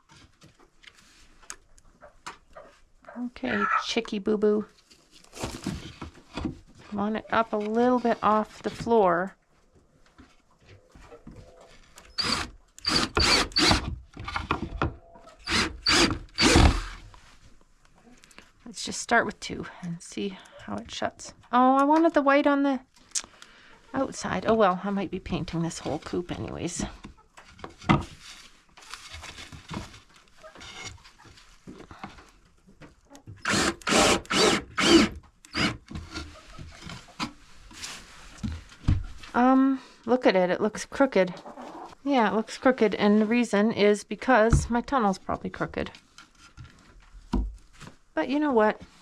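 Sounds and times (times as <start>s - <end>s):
cordless drill driving screws: 12.2s - 13.9s, 15.4s - 17.0s, 33.4s - 35.8s
wood rubbing and scraping: 25.6s - 39.4s.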